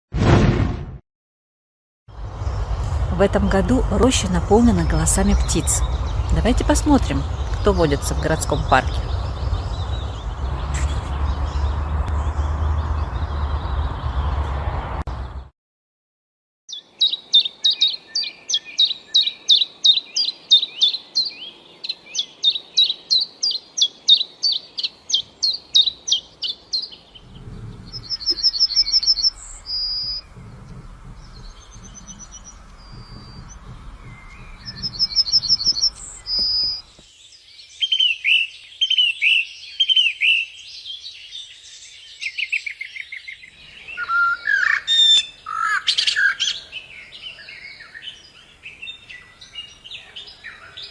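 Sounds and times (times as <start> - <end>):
short high bird trills: 27.2 - 36.9
falling whistled bird notes: 27.2 - 37.0.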